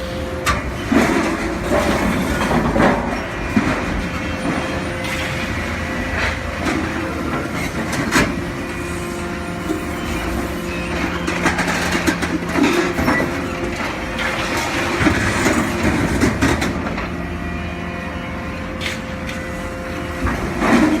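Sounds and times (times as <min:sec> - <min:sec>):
machine hum: 0:00.0 - 0:21.0
metal clanks and knocks: 0:10.9 - 0:17.2.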